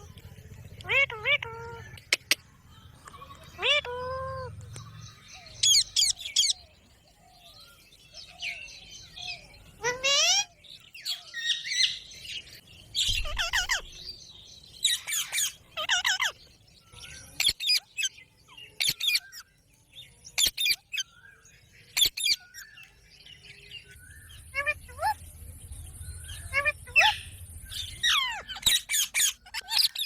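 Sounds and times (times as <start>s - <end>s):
parrot squawking: 0.8s - 2.4s, 3.0s - 4.6s, 5.4s - 6.6s, 9.8s - 10.6s, 13.0s - 14.0s, 14.9s - 16.4s, 24.5s - 25.2s, 26.3s - 30.0s.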